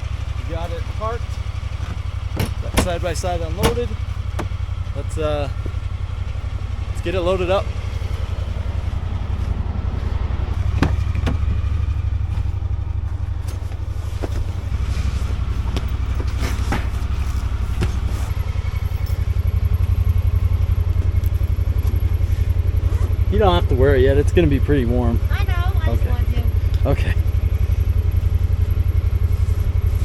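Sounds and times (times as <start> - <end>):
gear knocking and clattering: 0.0 - 7.6
engine idling: 0.0 - 30.0.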